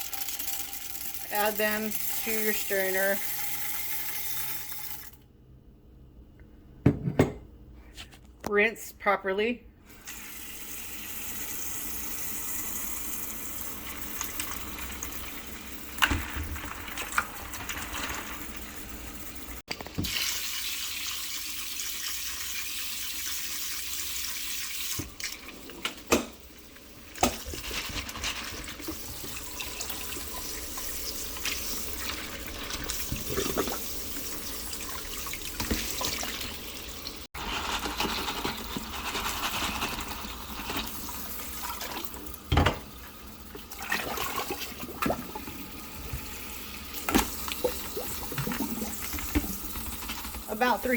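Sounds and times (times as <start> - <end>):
tap water running into sink: 19.7 - 26.4, 27.1 - 37.2, 40.7 - 50.8.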